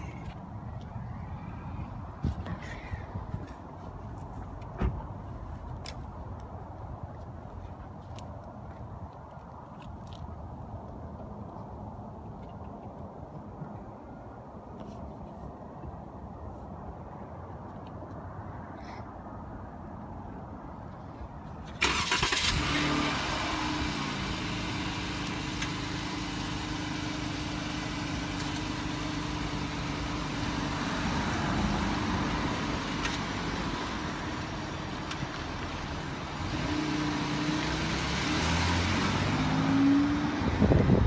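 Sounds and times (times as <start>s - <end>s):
engine running and revving: 22.4s - 41.0s.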